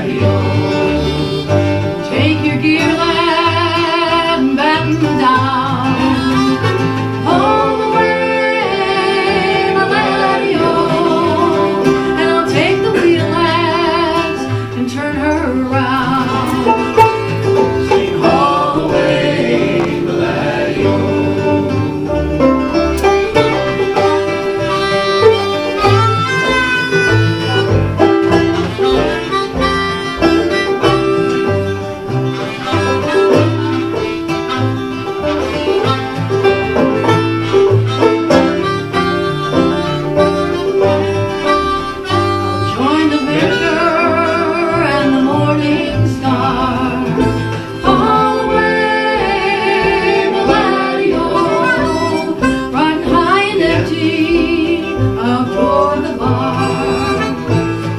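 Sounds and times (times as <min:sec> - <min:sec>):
acoustic folk band playing: 0:00.0 - 0:57.9
wavering melody with vibrato: 0:05.7 - 0:57.9.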